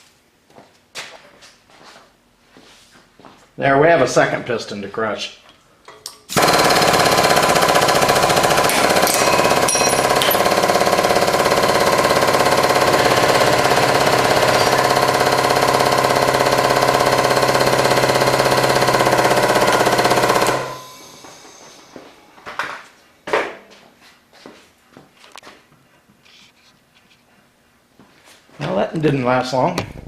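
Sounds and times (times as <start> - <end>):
hydraulic pump pulsing drone: 6.4 - 22.1.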